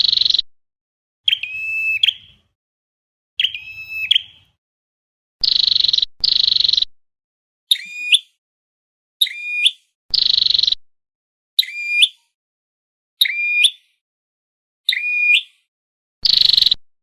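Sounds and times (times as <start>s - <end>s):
bird buzzy trill: 0.0s - 0.4s, 5.4s - 6.9s, 10.1s - 10.8s
sharp high bird chirps: 0.0s - 0.5s, 1.3s - 2.5s, 3.4s - 4.6s, 5.4s - 6.9s, 7.7s - 8.4s, 9.2s - 10.8s, 11.6s - 12.3s, 13.2s - 14.0s, 14.9s - 16.8s.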